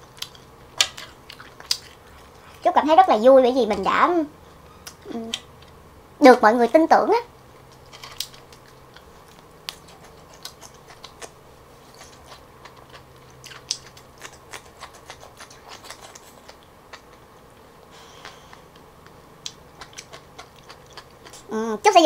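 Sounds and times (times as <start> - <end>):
chewing crunches: 0.0 - 2.6, 7.6 - 17.3, 18.2 - 21.5.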